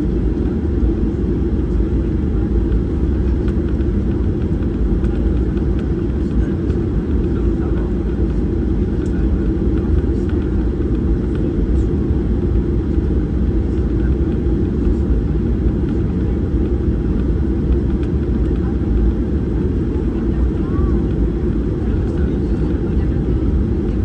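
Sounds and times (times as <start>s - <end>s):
airplane cabin engine rumble: 0.0s - 24.0s.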